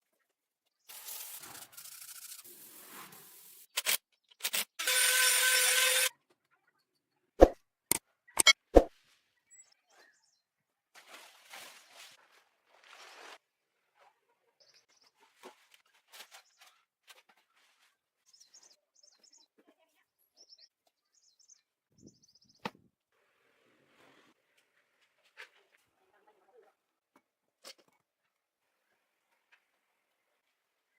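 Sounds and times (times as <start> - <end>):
metal cutting with whine: 4.8 - 6.1
metal scraping and rasping: 4.8 - 6.1.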